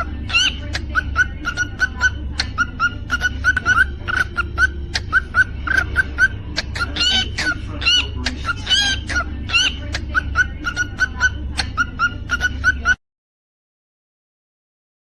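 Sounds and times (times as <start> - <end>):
cockatiel chirping: 0.0 - 13.0
steady low hum: 0.0 - 13.0.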